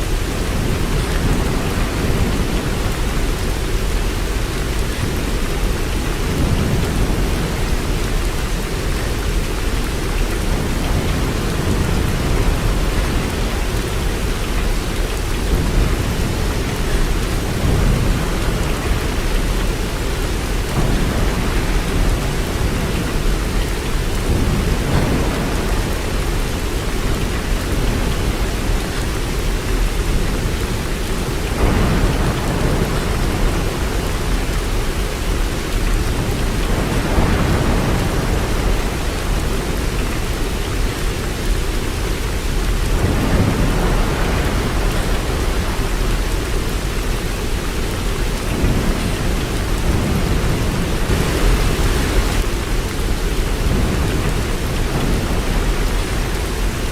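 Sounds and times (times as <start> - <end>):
dense rainfall: 0.0 - 56.9.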